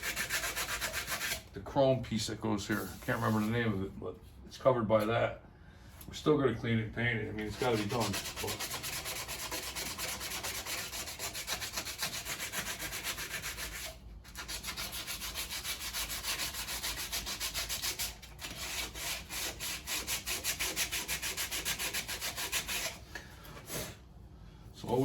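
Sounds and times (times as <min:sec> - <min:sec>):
sandpaper rubbing on metal: 0:00.0 - 0:01.4, 0:07.4 - 0:23.0.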